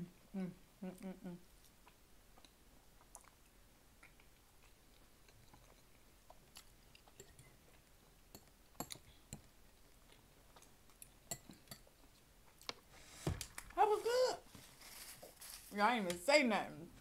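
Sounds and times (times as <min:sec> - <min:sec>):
faint chewing of food: 0:01.4 - 0:13.0.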